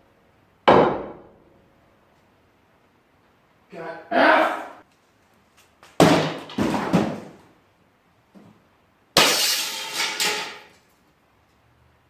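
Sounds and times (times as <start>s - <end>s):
glass shards falling: 9.2s - 10.8s
glass shattering: 9.2s - 10.8s.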